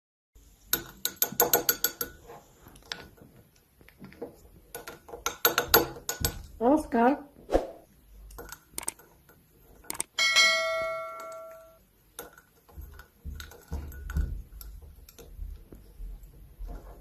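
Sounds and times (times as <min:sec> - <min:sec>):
small bell ringing: 0:10.2 - 0:11.8.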